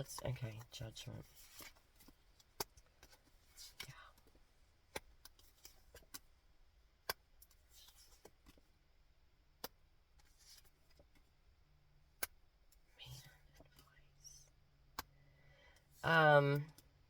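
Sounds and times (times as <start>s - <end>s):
cards rustling: 0.5s - 6.3s, 10.2s - 11.2s
cards clicking and tapping: 4.9s - 6.3s.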